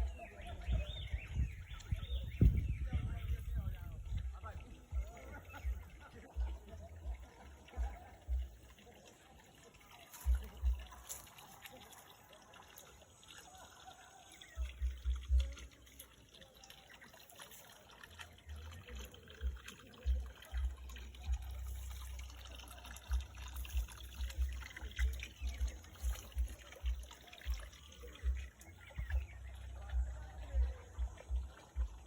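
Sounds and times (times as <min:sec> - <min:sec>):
low rumbles and thumps: 0:00.0 - 0:08.7, 0:19.4 - 0:22.0, 0:23.0 - 0:32.0
water trickling: 0:00.0 - 0:32.0.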